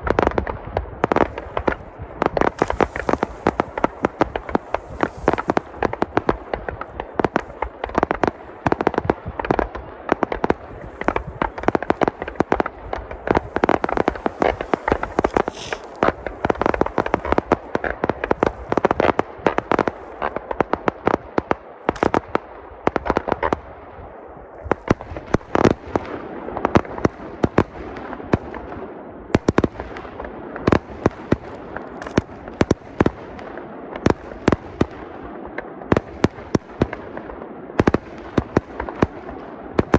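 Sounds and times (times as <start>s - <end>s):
fireworks bursting: 1.0s - 21.2s, 21.9s - 23.7s, 29.4s - 35.2s.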